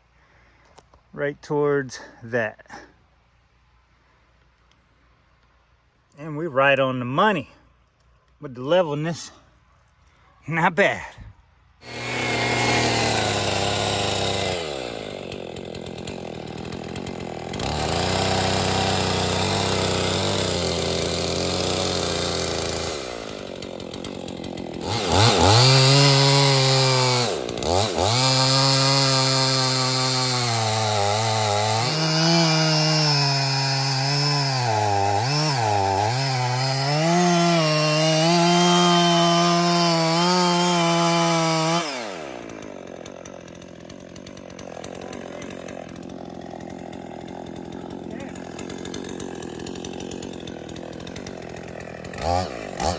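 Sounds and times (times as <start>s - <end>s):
chainsaw cutting wood: 11.8s - 52.9s.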